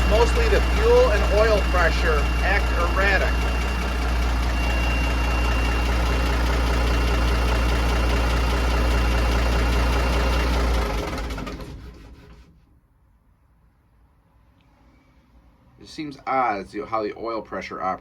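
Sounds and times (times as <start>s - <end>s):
thin high whine: 0.0s - 7.3s
diesel truck engine idling: 0.0s - 12.4s.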